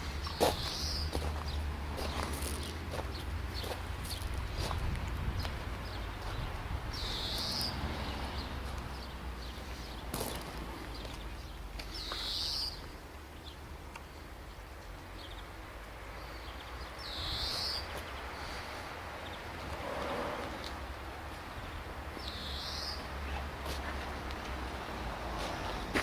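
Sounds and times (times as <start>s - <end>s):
steady low rumble: 0.0s - 7.1s
bird calling: 0.2s - 1.3s, 6.9s - 7.8s, 11.9s - 12.8s.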